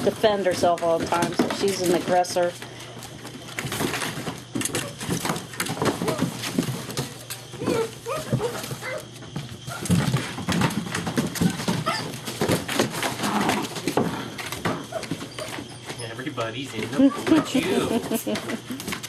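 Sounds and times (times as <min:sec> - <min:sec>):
paws scrabbling and clicking: 0:00.0 - 0:16.1, 0:16.7 - 0:19.0
puppies yipping and growling: 0:03.9 - 0:16.2, 0:16.9 - 0:19.0.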